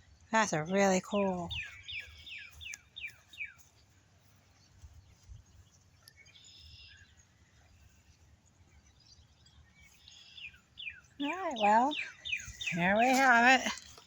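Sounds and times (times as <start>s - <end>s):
faint outdoor background: 0.0s - 14.0s
songbird singing whistled notes: 0.5s - 3.8s, 4.9s - 7.4s, 8.7s - 13.6s.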